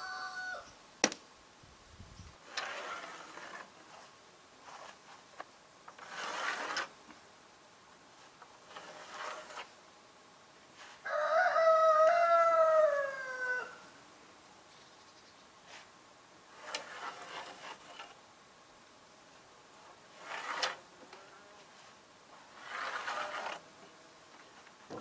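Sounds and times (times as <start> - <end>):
rooster crowing: 0.0 - 0.7, 11.0 - 13.9
faint rustling: 19.3 - 25.0.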